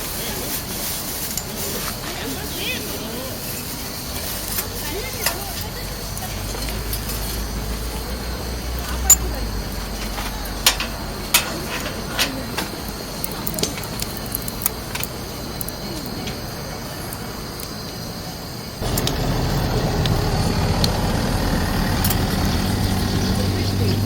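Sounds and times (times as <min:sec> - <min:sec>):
wood fire crackling and popping: 0:10.8 - 0:18.0.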